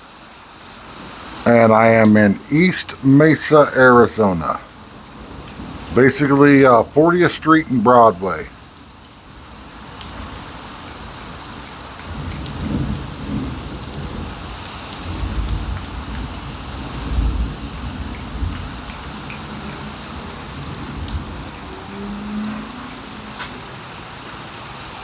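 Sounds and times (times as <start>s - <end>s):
heavy rain falling: 0.0s - 25.0s
low rolling thunder: 12.1s - 24.1s.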